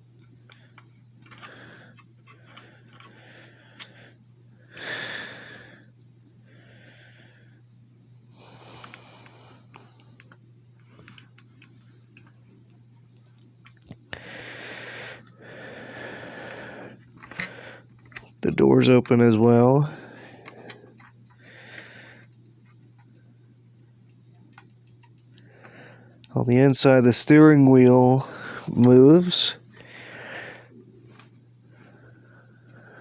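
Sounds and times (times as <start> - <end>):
steady low hum: 0.0 - 33.0
plastic toy handling clicks: 0.2 - 3.1
person breathing heavily: 0.6 - 7.6, 14.1 - 18.0, 19.8 - 22.3, 25.4 - 26.2, 28.2 - 33.0.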